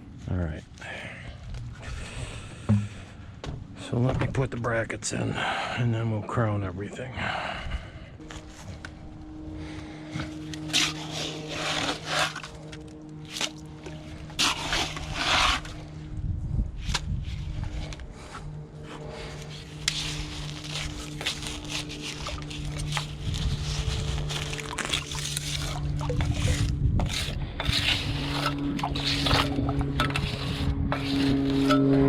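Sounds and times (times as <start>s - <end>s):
low hum: 0.0s - 32.0s
metal scraping and knocking in cement: 24.7s - 32.0s.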